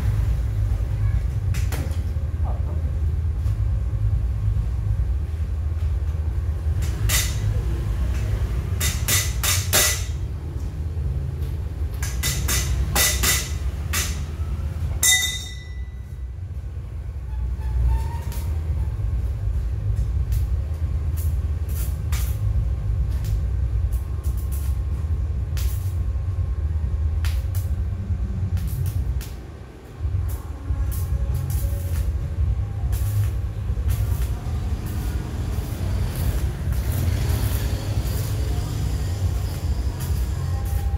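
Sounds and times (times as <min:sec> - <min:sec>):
welder electrical hum: 0:00.0 - 0:40.9
sharp metallic clicks and crackles: 0:06.0 - 0:14.3, 0:19.8 - 0:26.4, 0:27.1 - 0:40.9
ringing metal strike: 0:15.0 - 0:16.2.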